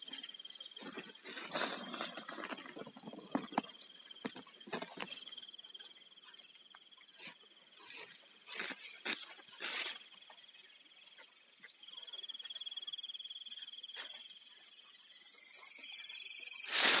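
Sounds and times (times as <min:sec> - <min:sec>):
cricket-like insect trilling: 0:00.0 - 0:17.0
rustling: 0:16.7 - 0:17.0.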